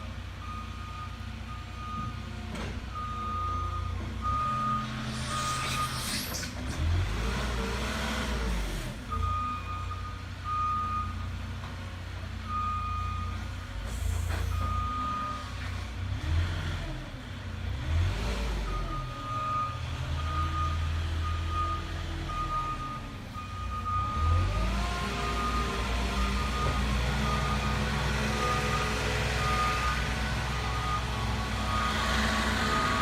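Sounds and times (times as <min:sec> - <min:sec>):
reversing alarm beeping: 0:02.9 - 0:06.4, 0:14.5 - 0:15.4, 0:18.6 - 0:33.0
forklift engine revving: 0:04.2 - 0:09.2, 0:23.7 - 0:33.0.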